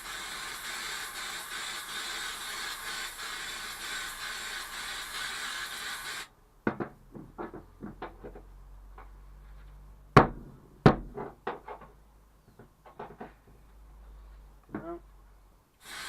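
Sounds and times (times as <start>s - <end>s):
aerosol spray hissing: 0.0s - 6.3s.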